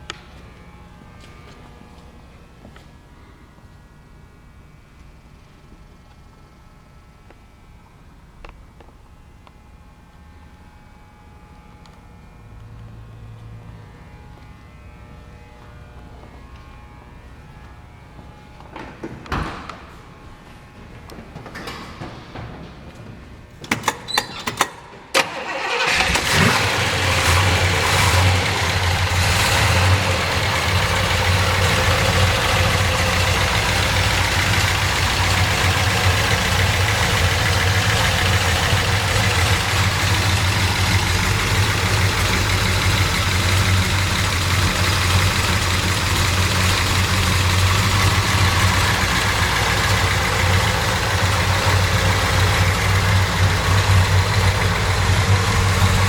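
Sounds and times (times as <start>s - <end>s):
engine starter cranking: 23.6s - 56.0s
car engine revving and idling: 25.5s - 56.0s.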